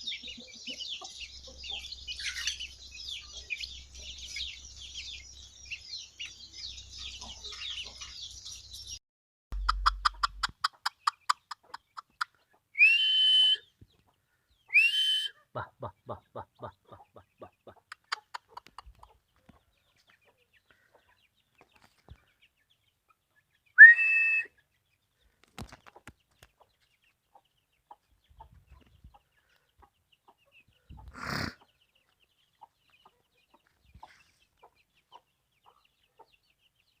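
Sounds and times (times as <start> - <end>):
chickens clucking: 0.0 - 9.0, 9.6 - 12.8, 13.6 - 23.7, 24.6 - 37.0
chicken high whistle-like call: 12.8 - 13.7, 14.7 - 15.4, 23.8 - 24.6.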